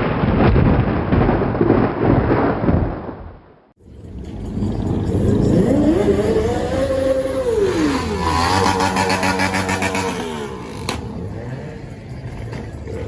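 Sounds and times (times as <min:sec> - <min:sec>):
car engine revving: 0:04.0 - 0:13.0.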